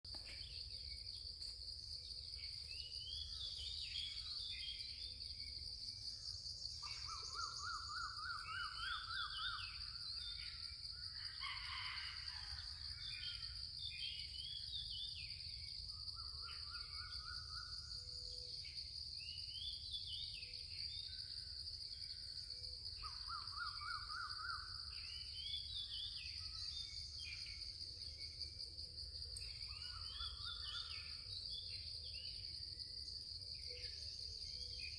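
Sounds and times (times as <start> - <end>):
birds chirping and calling: 6.1 - 10.6.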